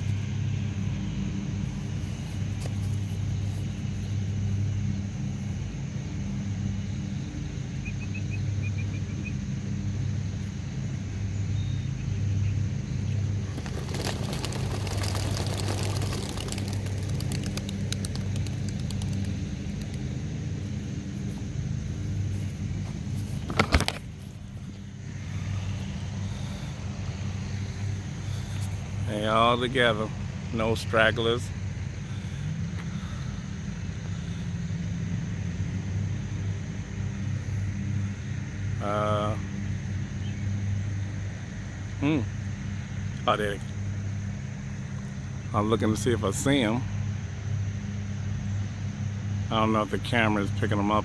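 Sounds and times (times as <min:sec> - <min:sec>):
vehicle engine idling: 0:00.0 - 0:51.0
bird chirping: 0:07.8 - 0:09.4.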